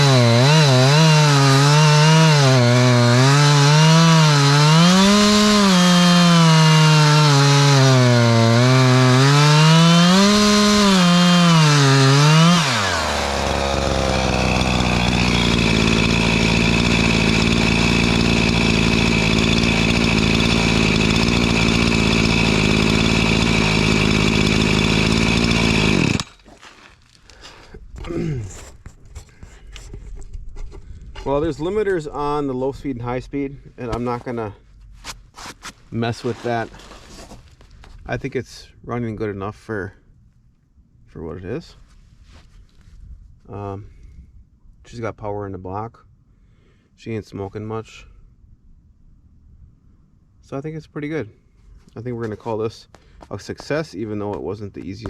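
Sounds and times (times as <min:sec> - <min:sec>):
chainsaw revving and idling: 0:00.0 - 0:26.7.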